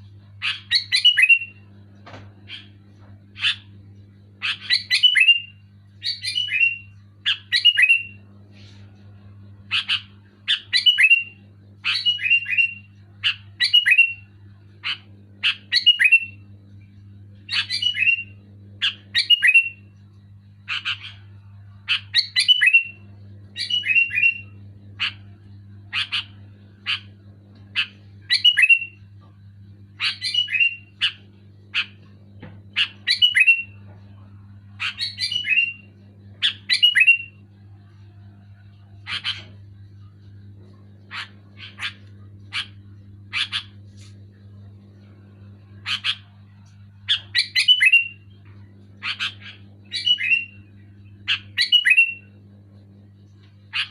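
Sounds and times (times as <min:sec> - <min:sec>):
steady low hum: 0:00.0 - 0:53.9
bird whistling calls: 0:00.4 - 0:01.6, 0:04.4 - 0:08.2, 0:27.8 - 0:29.0, 0:30.0 - 0:31.2, 0:32.8 - 0:33.8, 0:34.8 - 0:37.4, 0:47.1 - 0:48.2, 0:49.0 - 0:50.6, 0:51.3 - 0:52.3.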